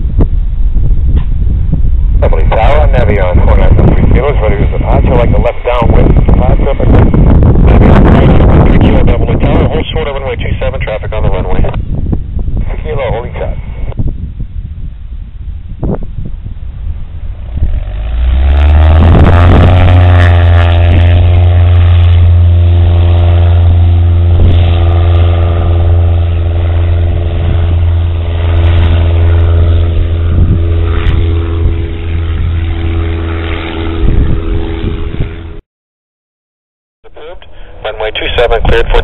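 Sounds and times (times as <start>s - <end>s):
propeller airplane engine: 0.0s - 35.6s, 37.0s - 39.0s.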